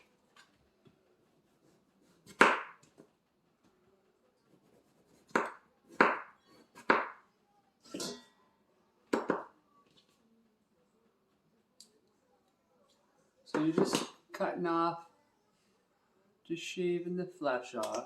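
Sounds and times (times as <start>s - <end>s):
knife chopping on cutting board: 2.2s - 2.9s, 4.6s - 7.2s.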